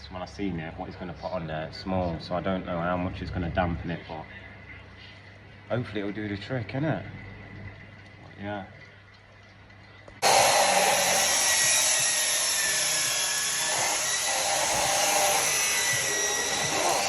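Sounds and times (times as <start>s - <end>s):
power tool grinding: 10.2s - 17.0s.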